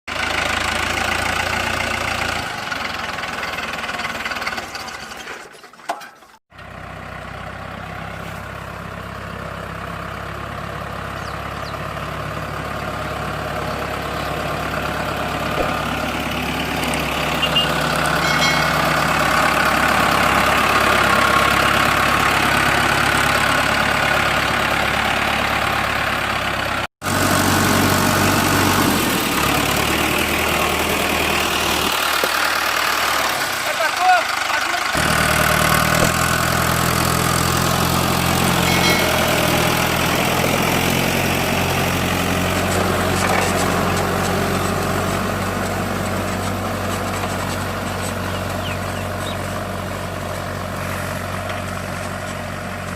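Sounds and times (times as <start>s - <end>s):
tractor diesel engine running: 0.1s - 52.9s.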